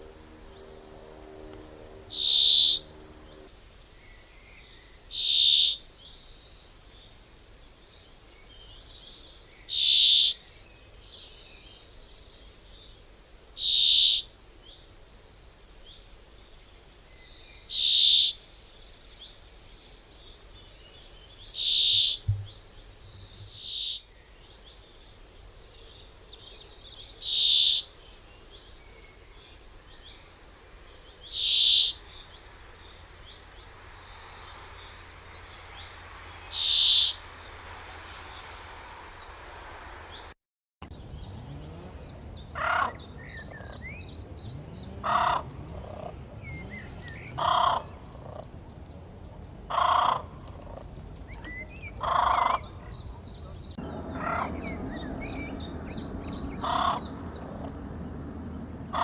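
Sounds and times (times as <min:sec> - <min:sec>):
lower harsh bird call: 0:00.0 - 0:05.9, 0:09.6 - 0:11.8, 0:13.6 - 0:14.3, 0:20.2 - 0:24.2, 0:25.8 - 0:29.5, 0:31.1 - 0:40.3, 0:51.4 - 0:57.8
short high bird call: 0:02.1 - 0:03.0.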